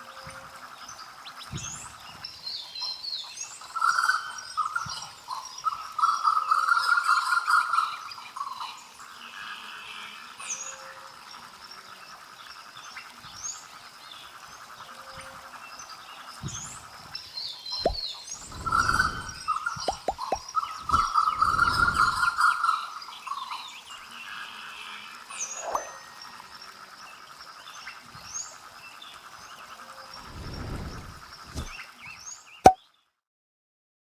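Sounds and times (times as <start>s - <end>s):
small birds chirping: 0.2s - 9.0s, 11.8s - 24.3s, 25.4s - 33.0s
frogs calling in chorus: 14.2s - 30.1s.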